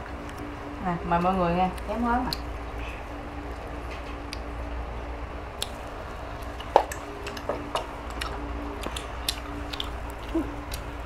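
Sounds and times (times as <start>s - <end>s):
wet chewing: 1.2s - 4.5s, 5.6s - 11.0s.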